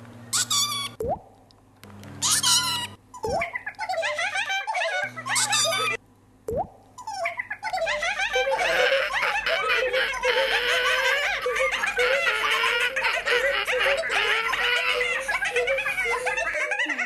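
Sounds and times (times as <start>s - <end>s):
people laughing: 7.8s - 17.0s.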